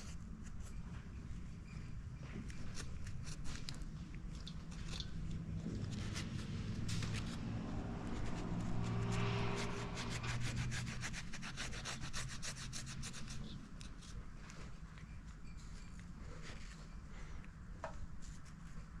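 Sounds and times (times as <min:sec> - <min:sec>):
low hum: 0:04.0 - 0:12.0.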